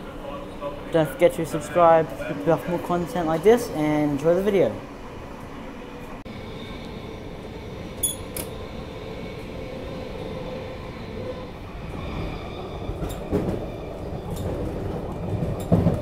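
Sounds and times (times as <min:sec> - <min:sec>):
train wheels rumbling on rails: 0:06.1 - 0:16.0
wheels clunking over rail joints: 0:13.0 - 0:16.0.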